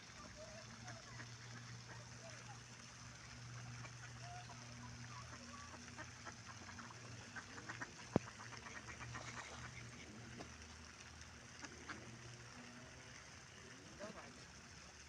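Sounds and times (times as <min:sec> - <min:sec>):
ducks quacking: 0:00.4 - 0:02.6, 0:03.6 - 0:10.4.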